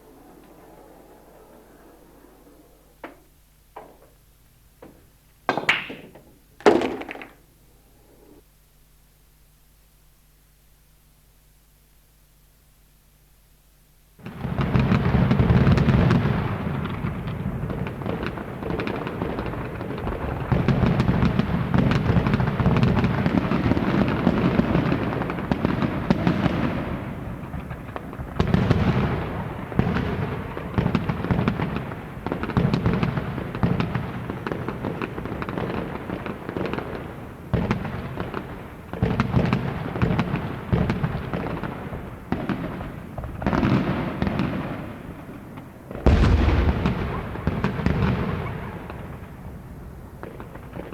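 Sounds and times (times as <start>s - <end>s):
rapid crackling bangs: 0.0s - 7.7s, 44.9s - 50.9s.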